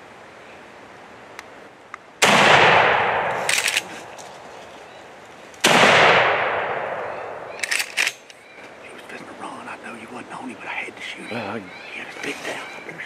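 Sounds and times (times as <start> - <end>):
gunshots with echo: 2.2 - 3.7, 5.6 - 7.6.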